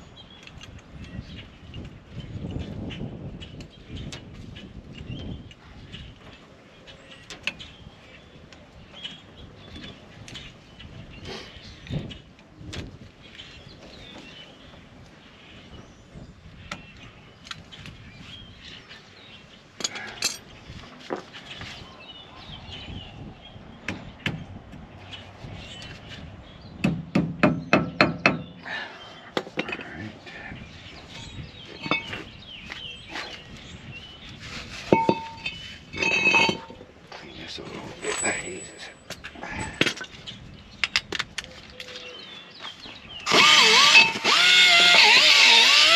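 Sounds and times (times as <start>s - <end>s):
hand tools clinking on metal: 31.7s - 32.3s, 34.9s - 36.8s, 38.0s - 40.2s, 43.8s - 45.2s.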